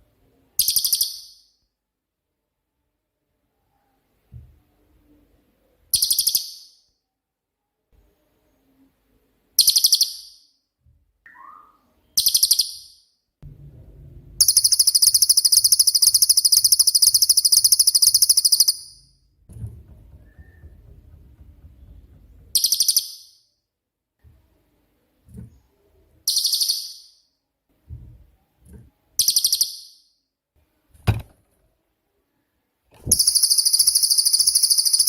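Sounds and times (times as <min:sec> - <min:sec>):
bird trilling: 0:11.3 - 0:12.9, 0:22.5 - 0:23.4.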